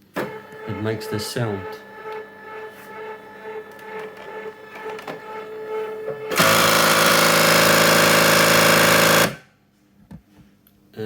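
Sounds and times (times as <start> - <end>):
cutting machine whirring hum: 0.0 - 9.5
harsh rapid hammering rattle: 6.3 - 9.4.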